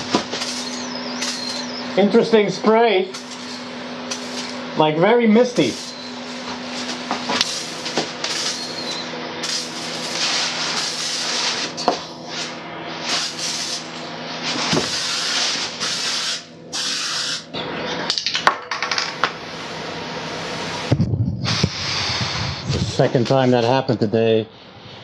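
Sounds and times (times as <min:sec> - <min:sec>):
aerosol spray hissing: 0:14.9 - 0:17.4.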